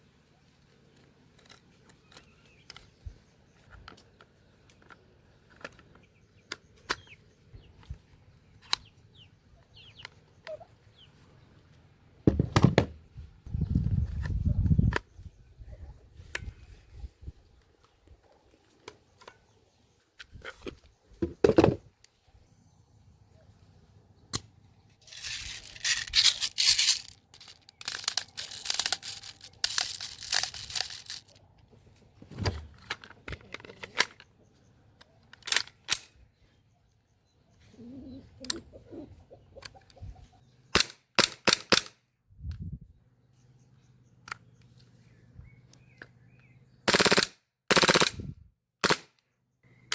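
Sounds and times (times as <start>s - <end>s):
clicks: 25.1s - 31.4s.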